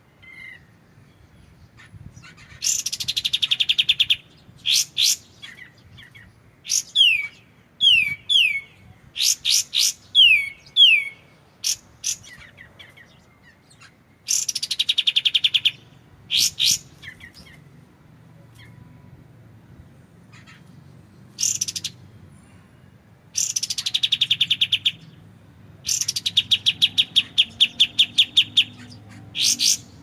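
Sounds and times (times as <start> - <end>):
songbird singing: 0.0 - 30.0
fast rattling bird trill: 14.3 - 17.6, 21.3 - 22.0, 23.4 - 25.0, 25.8 - 30.0.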